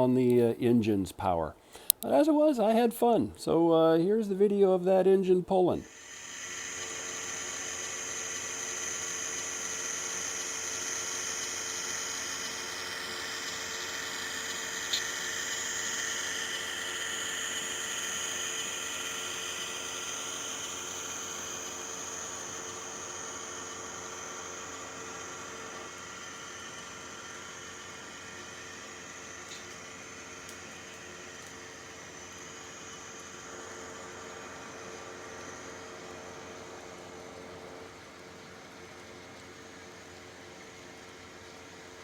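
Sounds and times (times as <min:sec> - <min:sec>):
wheels hissing on track: 0:05.8 - 0:37.7
model train motor whirring: 0:05.8 - 0:42.0.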